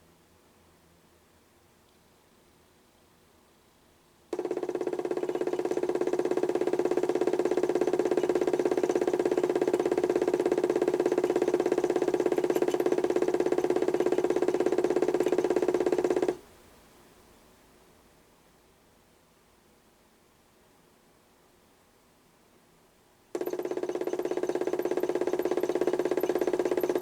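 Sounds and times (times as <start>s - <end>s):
pulsing motor hum: 4.4s - 16.4s, 23.4s - 27.0s.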